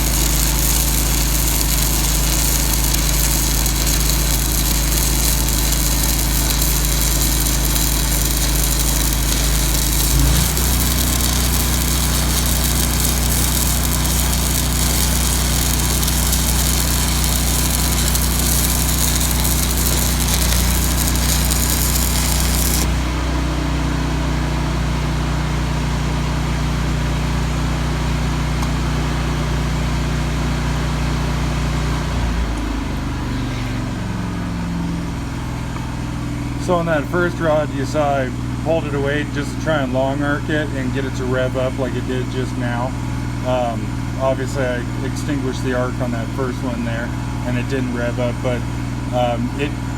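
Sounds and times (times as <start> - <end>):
welding arc crackling and hissing: 0.0 - 23.3
welder engine hum: 0.0 - 34.7, 36.6 - 49.9.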